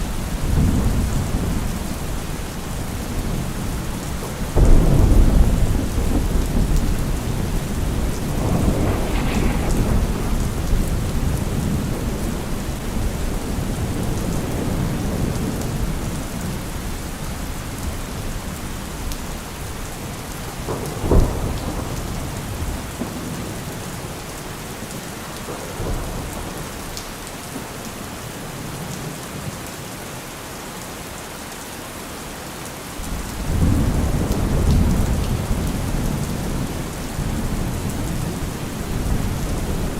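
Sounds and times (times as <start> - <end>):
steady rain: 0.0 - 39.9
thunder rolling: 4.4 - 15.3
sharp thunder crack: 4.6 - 13.3.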